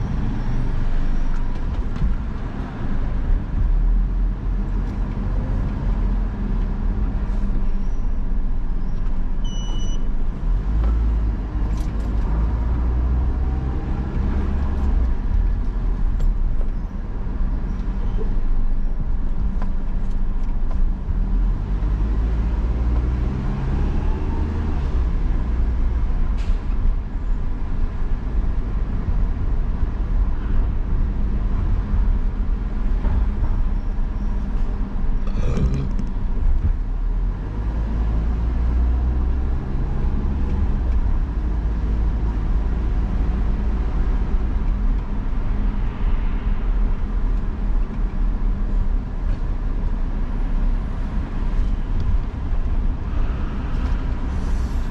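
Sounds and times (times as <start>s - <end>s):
car engine and road rumble: 0.0s - 54.9s
short beep: 9.4s - 10.1s.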